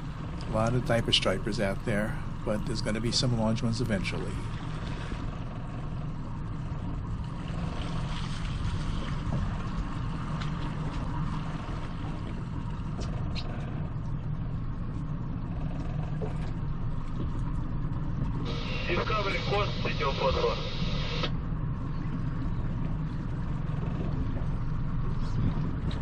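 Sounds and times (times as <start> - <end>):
boat motor rumbling: 0.0 - 26.0
water noise: 0.0 - 26.0.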